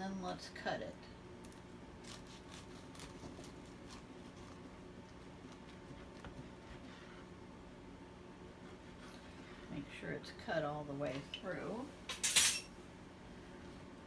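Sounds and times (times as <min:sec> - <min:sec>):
knife cutting sandwich: 0:01.5 - 0:06.9.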